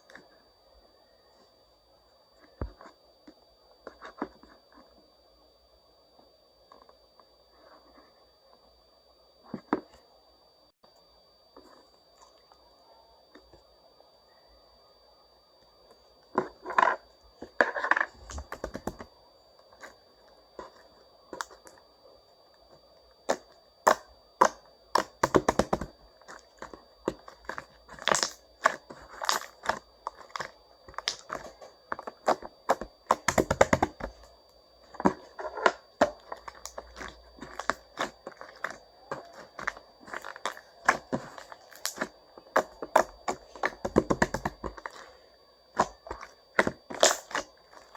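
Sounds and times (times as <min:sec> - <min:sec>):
slime squelching and popping: 0:23.3 - 0:34.3, 0:35.0 - 0:45.1, 0:45.8 - 0:47.9.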